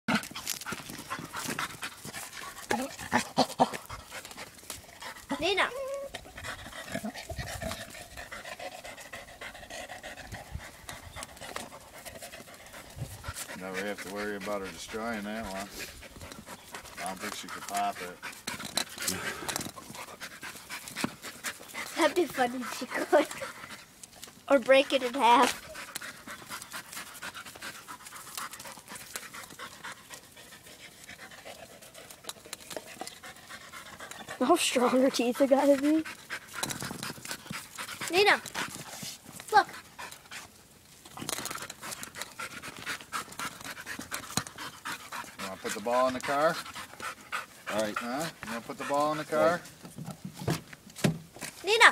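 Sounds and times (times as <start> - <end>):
dog panting: 0.1 - 50.6
teeth and claws clicking on ball: 35.8 - 38.8.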